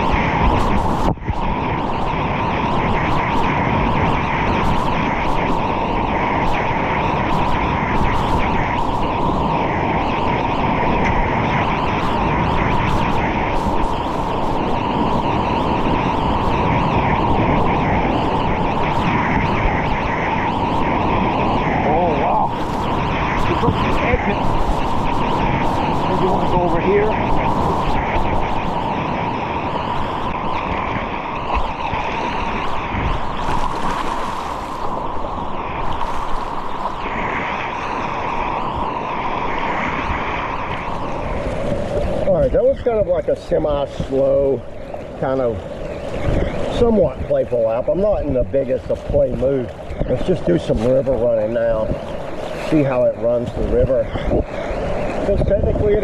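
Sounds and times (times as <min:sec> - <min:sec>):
water splashes: 0:17.3 - 0:29.0, 0:29.9 - 0:56.0
whitewater rushing: 0:30.3 - 0:38.4, 0:50.3 - 0:56.0.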